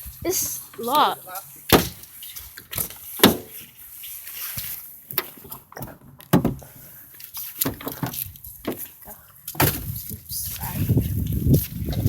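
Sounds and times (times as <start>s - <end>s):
knocks and thumps: 5.8s - 6.6s.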